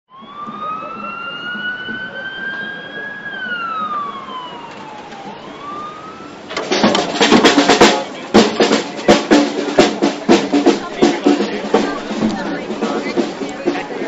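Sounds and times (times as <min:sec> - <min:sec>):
siren wailing: 0:00.1 - 0:06.6
loud drum beats: 0:06.5 - 0:14.0.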